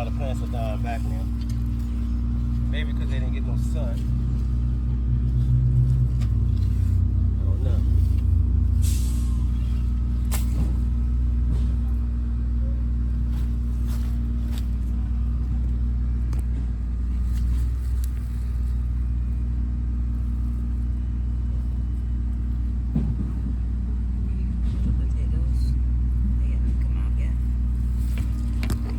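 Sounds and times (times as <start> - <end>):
digging clicks and scrapes: 0.0 - 10.9, 16.3 - 19.4, 27.7 - 28.9
low motor rumble: 0.0 - 28.9.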